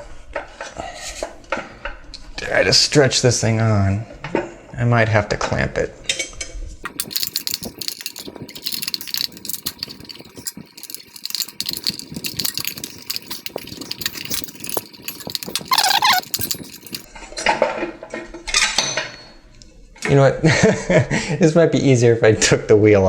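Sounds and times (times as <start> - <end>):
clicking and rattling of saw tire: 6.9 - 17.1.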